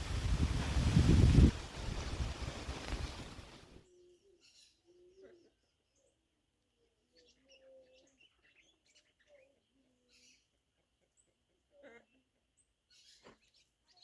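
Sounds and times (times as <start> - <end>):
low cooing bird calls: 0.0 - 3.6
wind buffeting microphone: 0.0 - 3.8.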